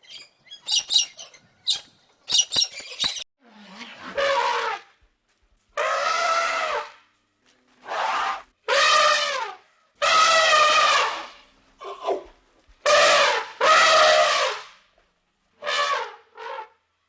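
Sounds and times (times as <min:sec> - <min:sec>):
animal trumpet-like calls: 0:03.6 - 0:05.0, 0:05.8 - 0:07.0, 0:07.8 - 0:12.2, 0:12.8 - 0:14.7, 0:15.6 - 0:16.8.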